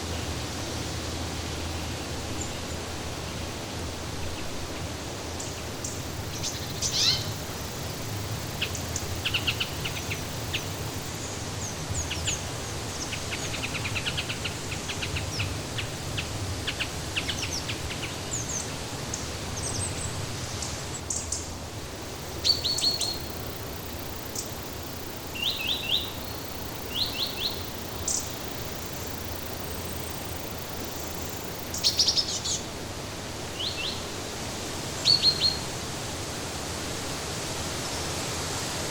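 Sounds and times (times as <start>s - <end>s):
small birds chirping: 5.4s - 21.4s, 22.0s - 32.7s.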